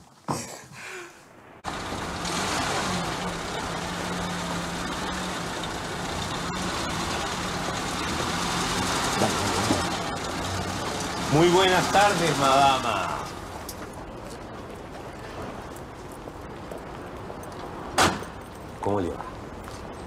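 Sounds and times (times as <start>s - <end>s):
car engine idling: 1.7s - 13.6s.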